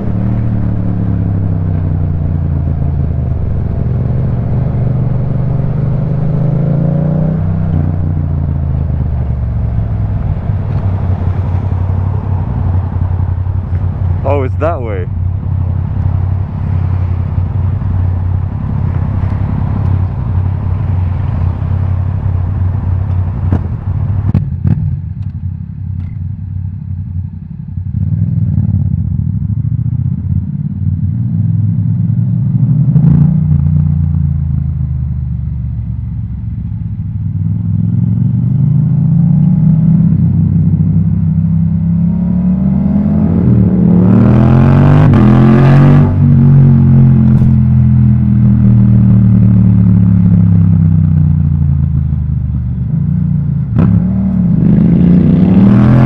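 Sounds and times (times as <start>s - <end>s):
motorcycle engine revving: 37.4s - 56.0s.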